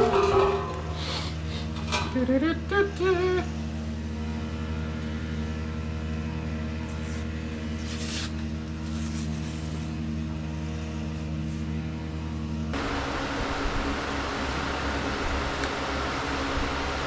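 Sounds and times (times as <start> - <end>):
motor drone: 2.5 - 17.0.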